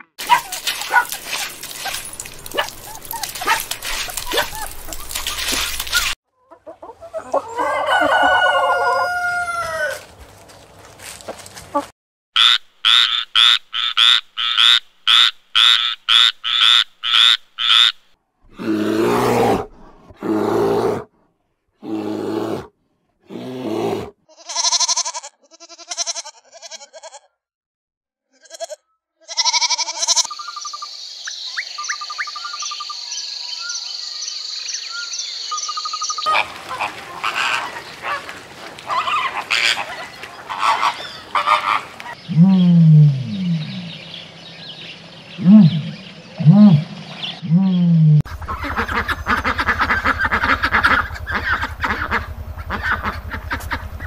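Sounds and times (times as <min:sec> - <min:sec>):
frog croaking: 0:12.4 - 0:18.0
goat bleating: 0:24.3 - 0:27.4, 0:28.3 - 0:30.3
flamingos calling: 0:35.8 - 0:42.3, 0:48.3 - 0:54.0.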